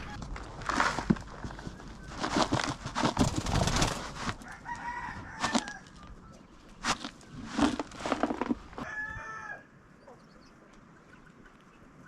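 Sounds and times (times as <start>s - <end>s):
scuffling noise: 0.2s - 6.1s, 6.8s - 9.0s.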